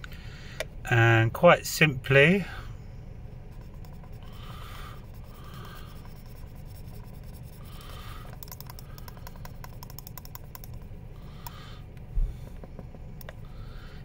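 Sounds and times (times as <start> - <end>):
marker scribbling on glass: 3.5 - 10.0
small clicks and taps: 8.3 - 13.4.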